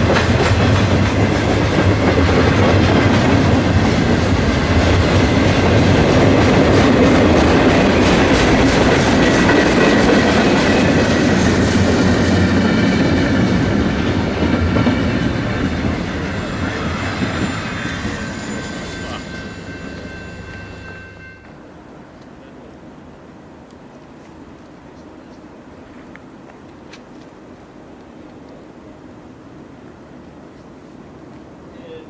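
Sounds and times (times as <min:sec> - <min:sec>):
train wheels clicking over rail joints: 0:00.0 - 0:20.8
faint high wheel squeal: 0:16.3 - 0:21.6.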